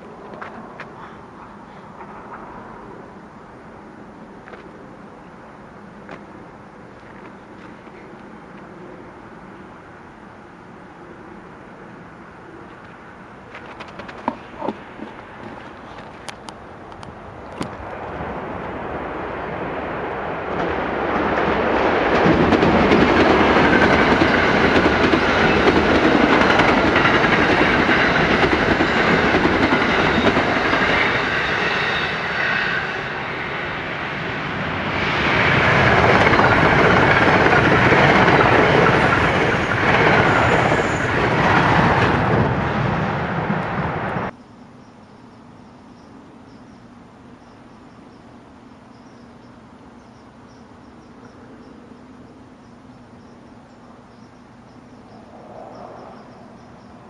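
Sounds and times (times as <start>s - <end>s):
passenger train passing: 0.0s - 44.3s.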